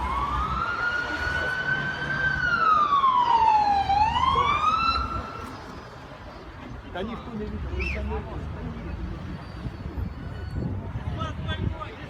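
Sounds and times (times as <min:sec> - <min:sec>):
emergency siren wailing: 0:00.0 - 0:05.5.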